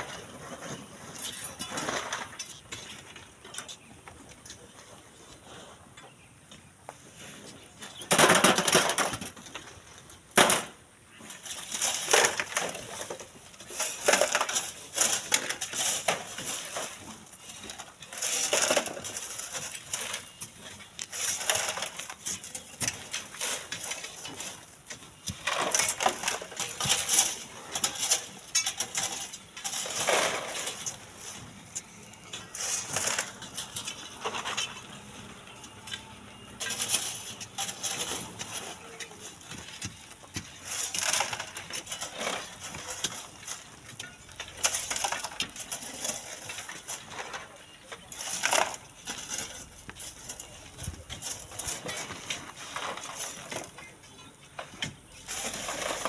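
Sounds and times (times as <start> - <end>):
shovels digging into gravel: 0.0 - 3.1, 10.4 - 56.0.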